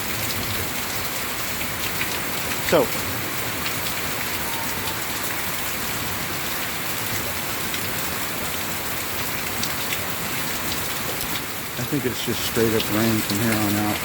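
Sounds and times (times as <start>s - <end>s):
steady rain hiss: 0.0s - 14.0s
single raindrops ticking: 9.2s - 14.0s.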